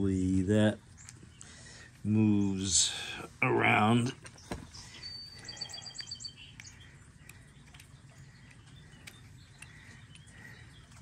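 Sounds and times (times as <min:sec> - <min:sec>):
bird trilling: 0:04.4 - 0:11.0.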